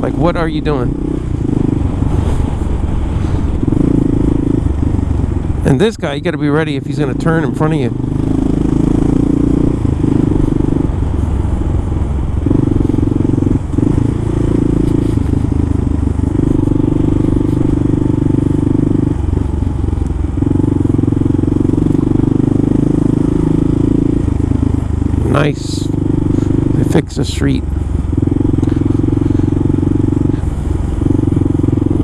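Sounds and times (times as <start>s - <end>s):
motorcycle engine droning: 0.0s - 32.0s.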